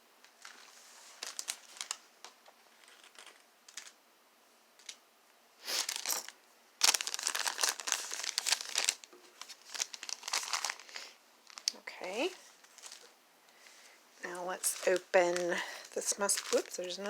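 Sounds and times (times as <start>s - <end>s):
plastic packaging crinkling: 0.4s - 4.0s, 5.8s - 13.2s, 14.3s - 17.0s.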